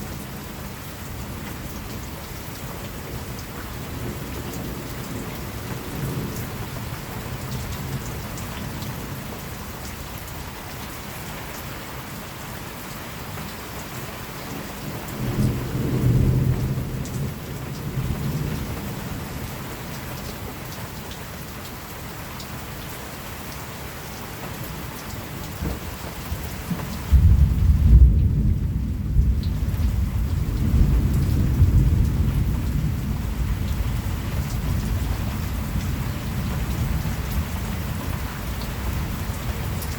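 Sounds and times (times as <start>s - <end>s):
steady rain: 0.0s - 39.9s
thunder rumbling: 15.1s - 19.1s, 25.6s - 39.9s
loud thunderclap: 27.1s - 37.0s.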